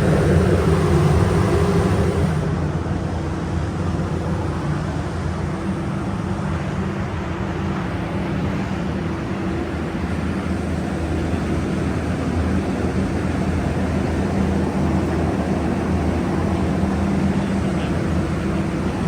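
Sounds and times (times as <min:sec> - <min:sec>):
machine engine humming: 0:00.0 - 0:03.1.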